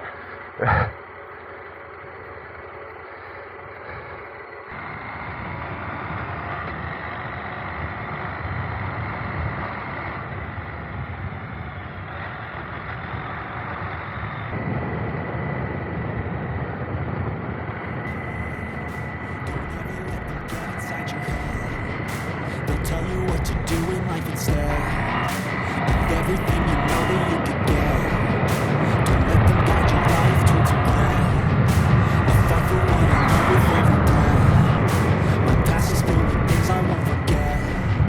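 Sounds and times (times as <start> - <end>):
road and wind noise: 3.7 - 20.2
motorcycle engine running: 18.1 - 38.0.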